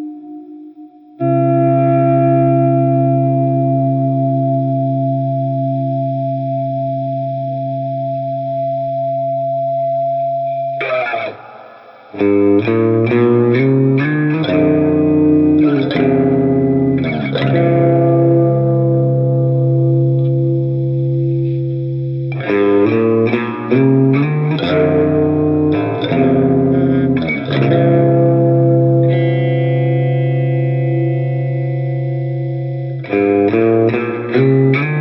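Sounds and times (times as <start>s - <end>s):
overdriven electric guitar chords: 0.0s - 35.0s.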